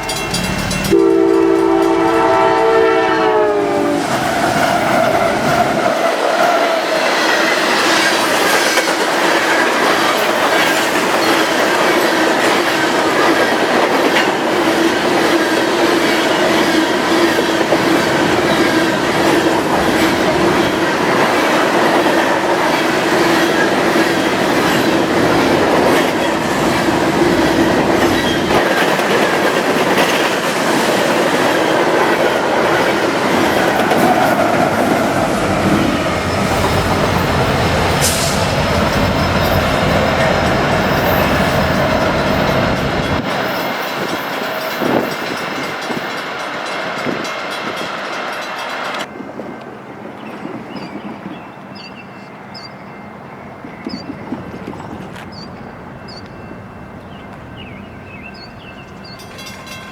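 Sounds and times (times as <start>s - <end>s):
train wheels clattering over rails: 4.0s - 49.4s.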